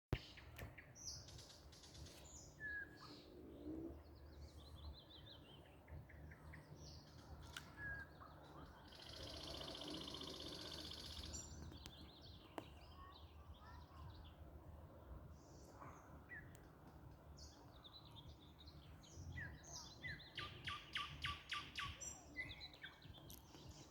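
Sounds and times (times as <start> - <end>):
songbirds chirping and whistling: 0.1 - 23.9.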